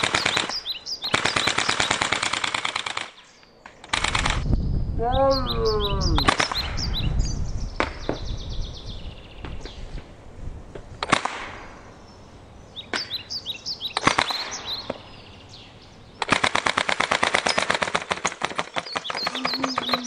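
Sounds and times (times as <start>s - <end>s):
bb gun firing: 6.2s - 6.8s, 11.0s - 11.7s, 14.0s - 15.0s, 16.2s - 19.4s.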